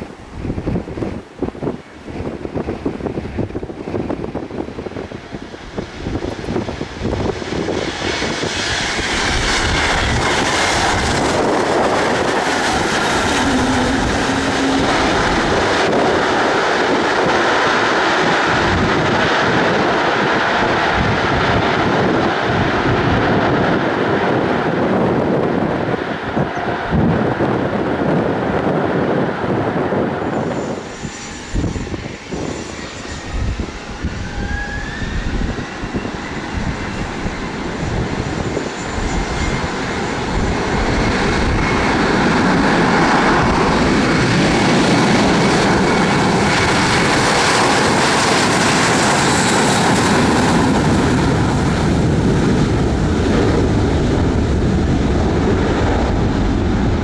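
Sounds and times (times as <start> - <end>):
airliner engines roaring: 0.0 - 57.0
wind gusts on microphone: 0.0 - 57.0
faint rising whine: 30.3 - 40.2.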